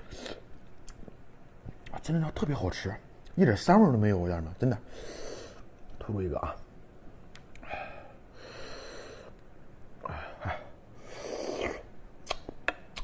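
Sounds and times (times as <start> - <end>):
breathy sucking sounds: 11.0 - 11.9
sharp mouth clicks: 11.6 - 13.0.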